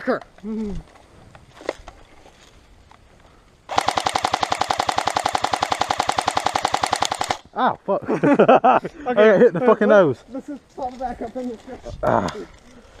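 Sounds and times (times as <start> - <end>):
airsoft rifle full-auto burst: 3.7 - 7.4.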